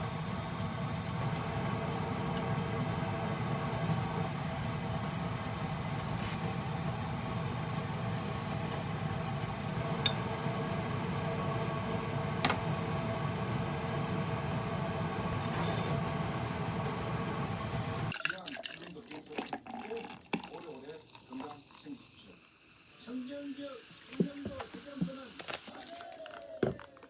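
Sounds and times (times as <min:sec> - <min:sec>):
low mechanical hum: 0:00.0 - 0:18.1.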